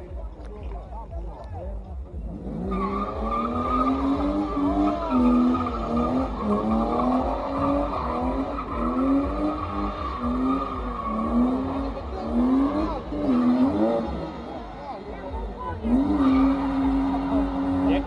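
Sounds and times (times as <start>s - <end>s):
car engine revving: 0.0s - 18.0s
tyre squeal: 2.6s - 11.9s.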